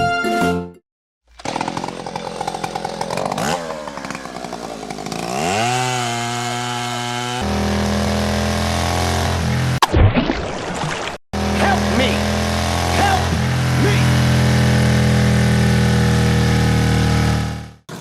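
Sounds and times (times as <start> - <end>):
small engine revving: 1.3 - 9.8, 11.4 - 18.0
steady engine drone: 11.4 - 18.0.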